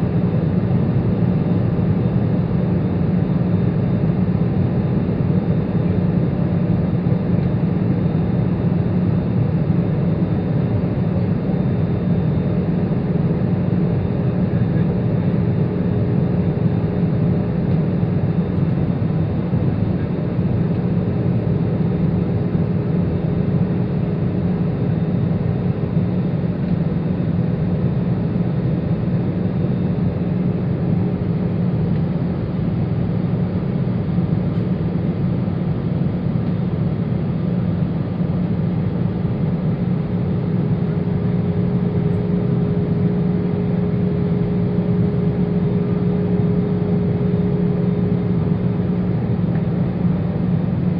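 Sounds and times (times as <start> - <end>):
jet engines low rumble: 0.0 - 50.9
faint steady hum: 38.3 - 50.9.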